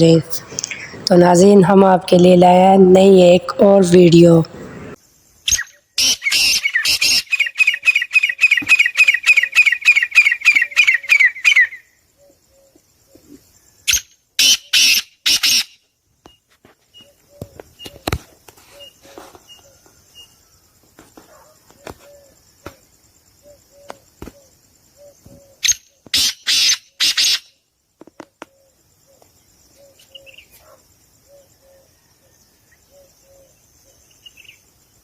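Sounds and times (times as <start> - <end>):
bird chirps: 4.4 - 20.5, 28.4 - 31.9
caged birds squawking: 4.5 - 12.8, 13.9 - 15.8, 25.0 - 27.5.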